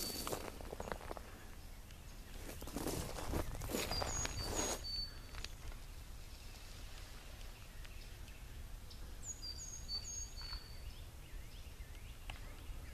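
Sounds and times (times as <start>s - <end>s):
high thin bird calls: 2.3s - 5.6s.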